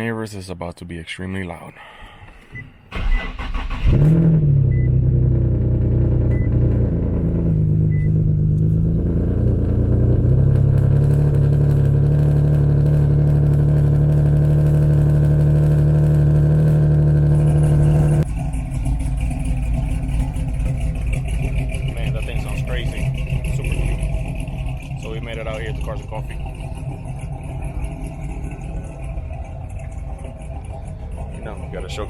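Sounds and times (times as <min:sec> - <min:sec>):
car engine starting and idling: 0:01.8 - 0:32.0.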